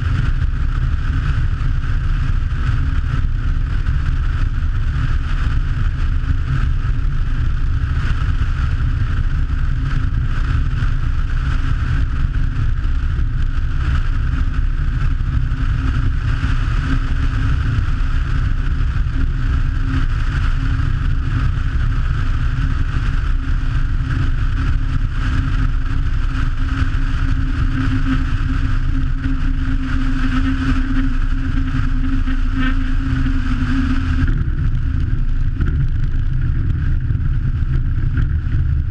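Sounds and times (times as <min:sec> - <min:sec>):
heavy low rumble: 0:00.0 - 0:38.9
aircraft engines droning: 0:13.1 - 0:38.9.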